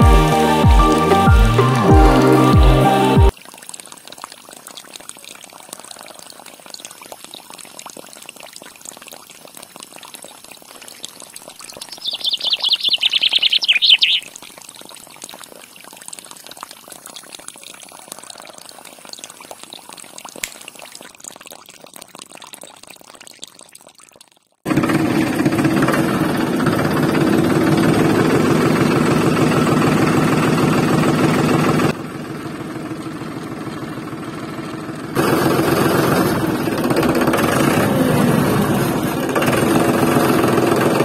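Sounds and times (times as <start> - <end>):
water trickling into a pool: 0.0 - 24.7.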